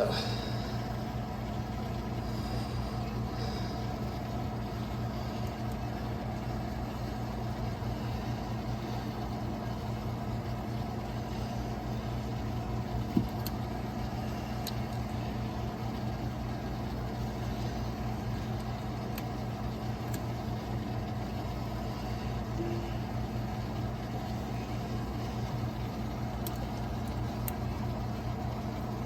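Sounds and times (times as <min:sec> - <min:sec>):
low machine drone: 0:00.0 - 0:29.0.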